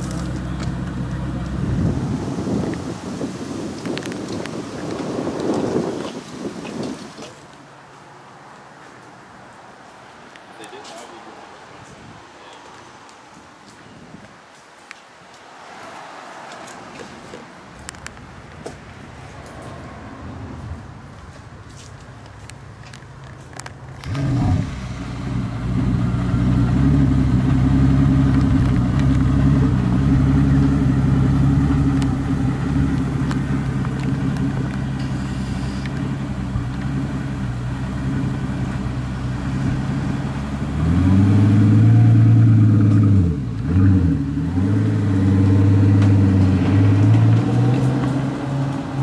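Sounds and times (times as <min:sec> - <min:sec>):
car engine revving: 0:24.0 - 0:49.0.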